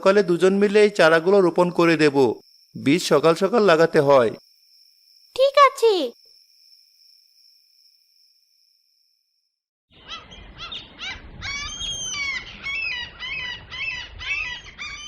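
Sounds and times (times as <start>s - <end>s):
birds chirping: 9.9s - 15.0s.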